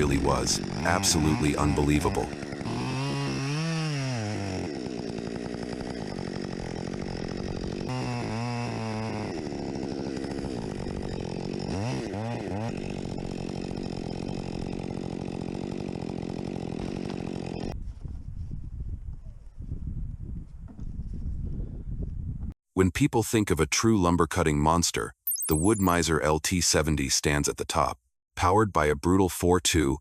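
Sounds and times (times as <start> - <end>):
chainsaw revving: 0.0 - 17.8.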